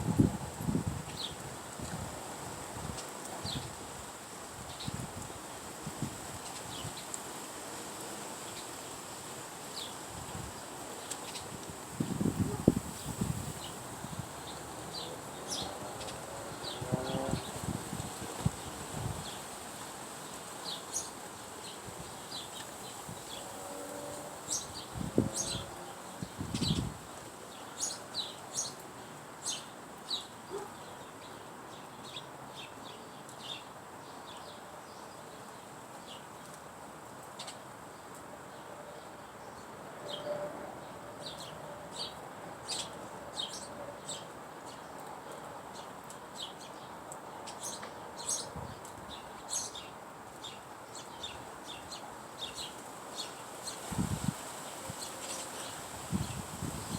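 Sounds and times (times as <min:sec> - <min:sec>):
small birds chirping: 0:24.2 - 0:26.9, 0:27.5 - 0:36.6, 0:41.2 - 0:56.9.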